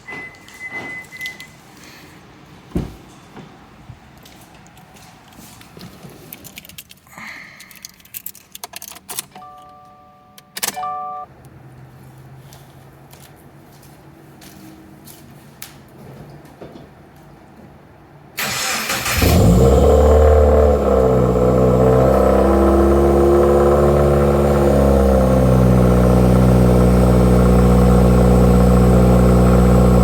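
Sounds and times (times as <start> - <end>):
keys jangling: 6.3 - 9.4
starter cranking engine starting: 18.4 - 22.2.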